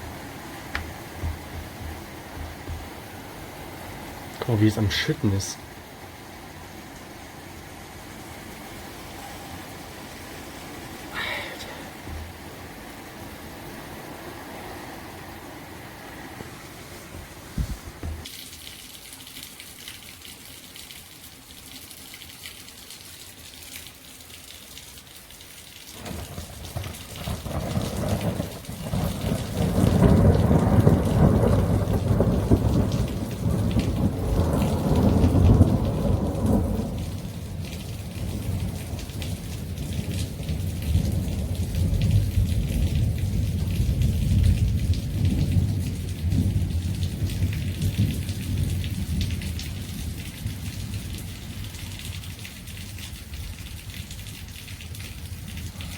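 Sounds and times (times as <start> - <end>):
heavy rain hissing: 0.0 - 18.3, 25.9 - 52.3, 54.7 - 55.9
thunder rolling: 26.0 - 49.6.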